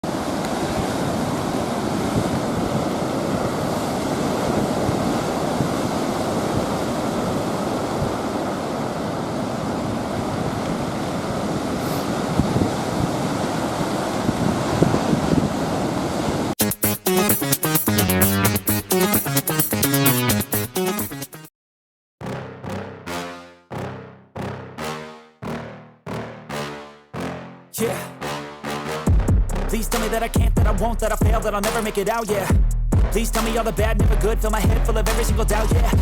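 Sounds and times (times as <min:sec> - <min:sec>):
ocean surf breaking: 0:00.0 - 0:16.6
wind buffeting microphone: 0:00.2 - 0:16.6.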